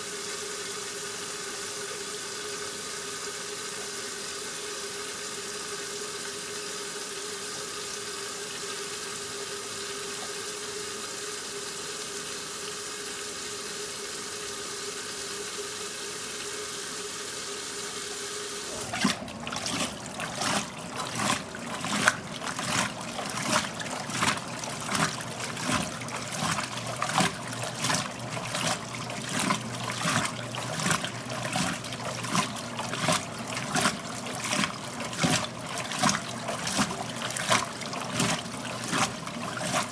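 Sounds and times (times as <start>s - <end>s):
washing machine hum: 0.0s - 39.9s
water running in: 0.0s - 39.9s
drum tumbling with water sloshing: 18.7s - 39.9s.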